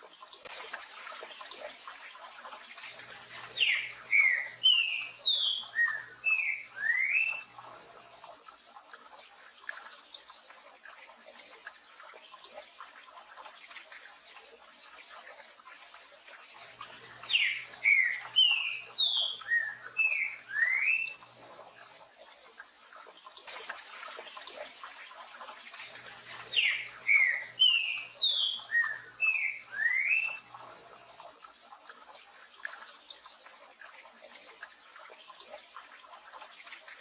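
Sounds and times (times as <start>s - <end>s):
bird whistling song: 3.6s - 7.5s, 17.2s - 21.2s, 26.5s - 30.4s.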